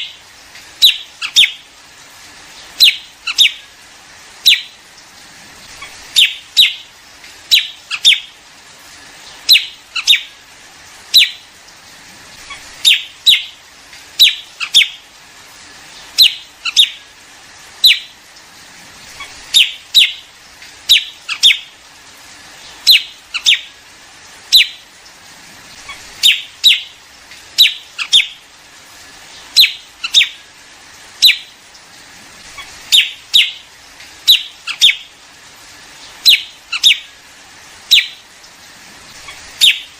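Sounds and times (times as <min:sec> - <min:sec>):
bird calls: 0:00.8 - 0:01.7, 0:02.5 - 0:03.7, 0:04.4 - 0:04.8, 0:05.7 - 0:06.9, 0:07.5 - 0:08.4, 0:09.2 - 0:10.4, 0:11.1 - 0:11.4, 0:12.4 - 0:13.6, 0:14.2 - 0:15.0, 0:15.9 - 0:17.1, 0:19.1 - 0:21.7, 0:22.6 - 0:23.8, 0:24.5 - 0:24.8, 0:25.8 - 0:27.0, 0:27.6 - 0:28.4, 0:29.3 - 0:30.5, 0:31.2 - 0:31.6, 0:32.4 - 0:35.1, 0:36.0 - 0:37.2, 0:37.9 - 0:38.3, 0:39.1 - 0:39.9.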